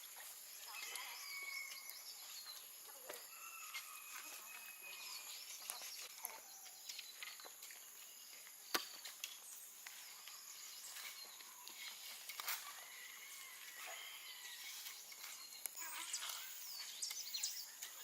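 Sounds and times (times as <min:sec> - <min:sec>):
whistled bird calls: 0:00.6 - 0:02.6.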